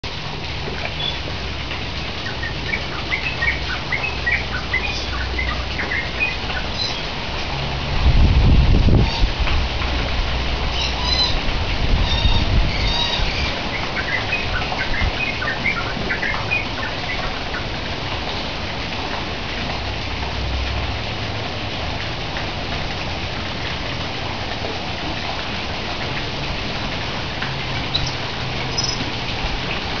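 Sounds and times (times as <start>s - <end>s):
small birds chirping: 27.9s - 29.0s.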